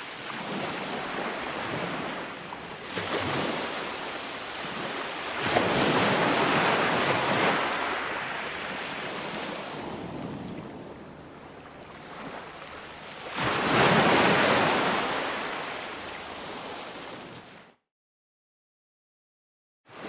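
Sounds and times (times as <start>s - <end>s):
ocean waves breaking: 0.0s - 17.7s.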